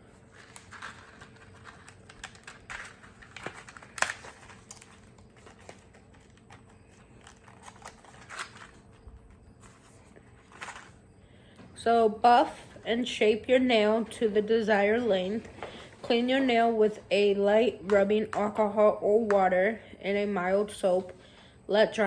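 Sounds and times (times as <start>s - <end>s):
faint steady hum: 0.0s - 22.0s
plastic packaging clicks and crinkles: 0.2s - 11.0s.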